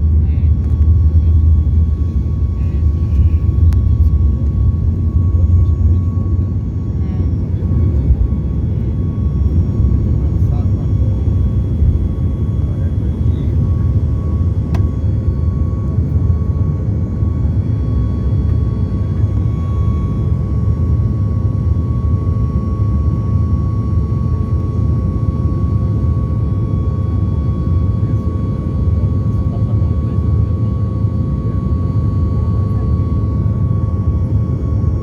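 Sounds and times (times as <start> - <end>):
steady hum: 0.0 - 17.7
airplane cabin engine rumble: 0.0 - 35.0.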